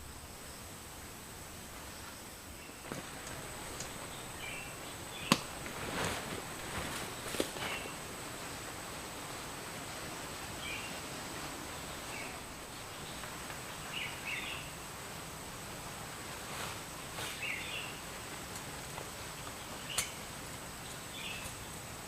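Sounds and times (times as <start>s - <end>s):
steady hiss: 0.0s - 22.0s
faint clicks: 2.9s - 4.2s.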